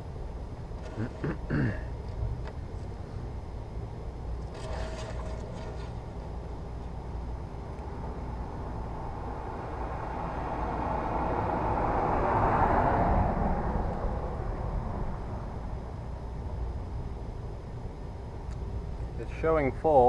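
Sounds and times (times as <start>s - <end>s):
steady low rumble: 0.0s - 19.8s
vehicle passing by: 8.9s - 15.2s.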